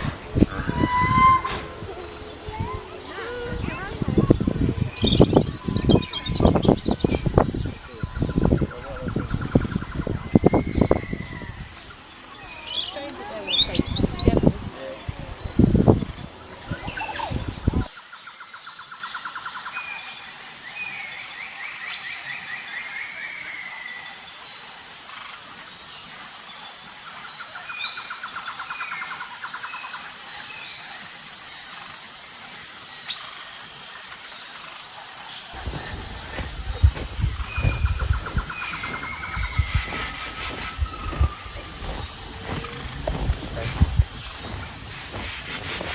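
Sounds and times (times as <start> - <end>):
rapid pulsed trills: 0.0 - 17.7, 35.6 - 45.9
birds calling and chirping: 0.0 - 17.9, 35.6 - 45.9
high insect drone: 0.0 - 45.9.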